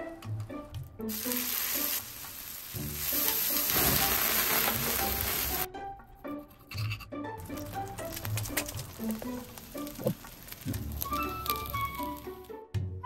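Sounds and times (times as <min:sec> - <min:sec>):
flames flaring up: 0:01.1 - 0:05.7, 0:07.4 - 0:12.5
food sizzling on a griddle: 0:01.1 - 0:05.7, 0:07.6 - 0:12.5.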